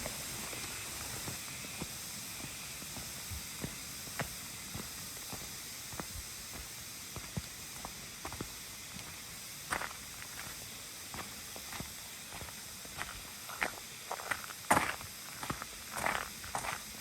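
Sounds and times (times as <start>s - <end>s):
footsteps on stone trail: 0.0s - 16.9s
steady rushing hiss: 0.0s - 17.0s.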